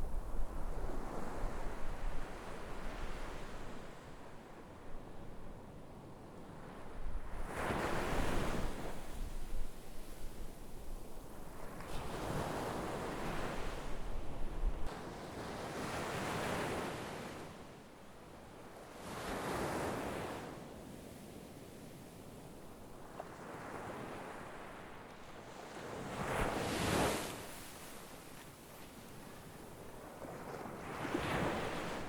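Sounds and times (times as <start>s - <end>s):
wind rumble on microphone: 0.0s - 15.5s
sea waves breaking on shore: 22.9s - 32.0s.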